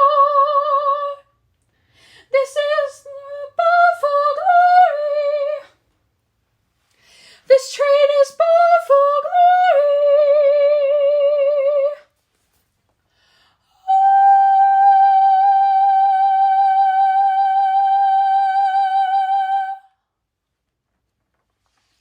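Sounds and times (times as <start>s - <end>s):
soprano singing with vibrato: 0.0s - 1.3s, 2.2s - 5.8s, 7.4s - 12.2s, 13.7s - 20.0s.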